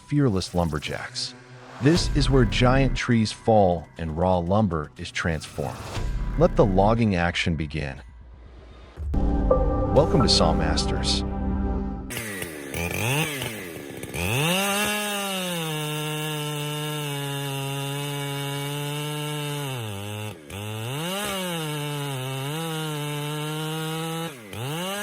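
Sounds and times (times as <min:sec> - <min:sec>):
chainsaw revving: 0:12.1 - 0:25.0.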